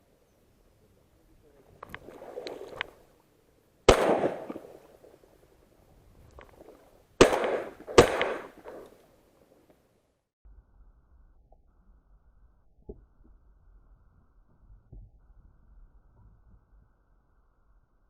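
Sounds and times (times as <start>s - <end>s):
shotgun shots echoing: 3.9s - 5.0s, 7.2s - 8.9s.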